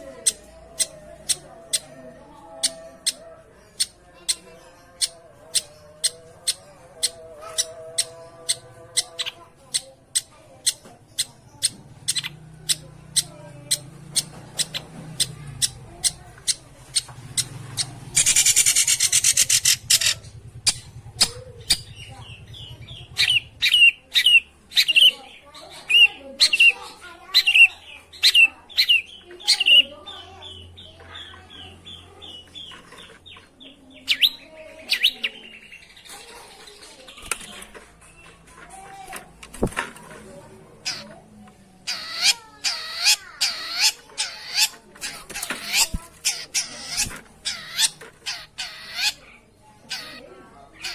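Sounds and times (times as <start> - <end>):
shrike scratchy chattering: 2.6 - 50.9
shrike sharp clicking calls: 14.1 - 25.1, 40.8 - 41.2, 41.9 - 49.2.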